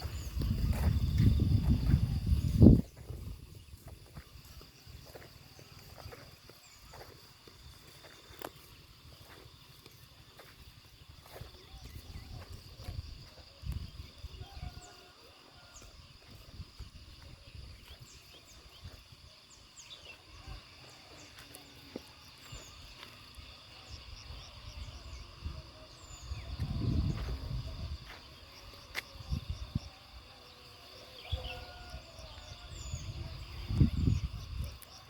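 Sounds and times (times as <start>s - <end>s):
low wind rumble: 0.0s - 4.0s
high insect drone: 0.0s - 35.0s.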